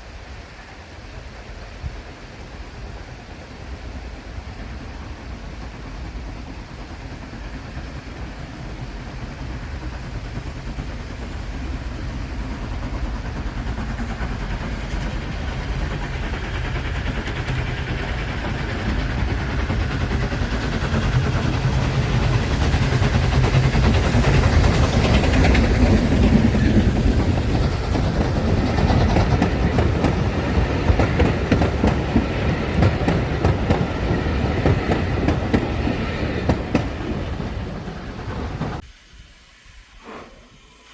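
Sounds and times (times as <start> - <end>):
train passing: 0.0 - 40.2
wheels clattering over rail joints: 16.9 - 38.8.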